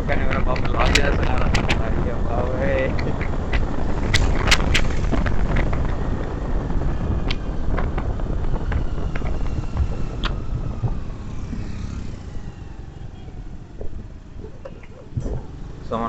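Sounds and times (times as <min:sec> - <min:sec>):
vehicle road noise: 0:00.0 - 0:16.0
wind on microphone: 0:00.0 - 0:16.0
sharp clicks: 0:00.2 - 0:02.0, 0:02.7 - 0:06.3, 0:07.2 - 0:11.0.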